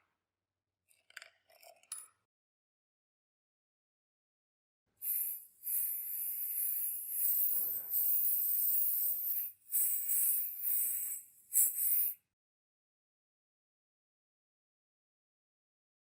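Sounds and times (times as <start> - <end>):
spray hissing: 5.0 - 12.2.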